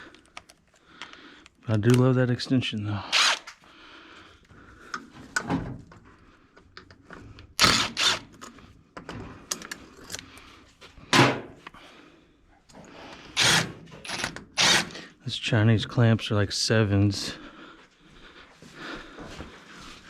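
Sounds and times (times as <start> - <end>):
hand tools and metal parts clunking: 4.9 - 11.8.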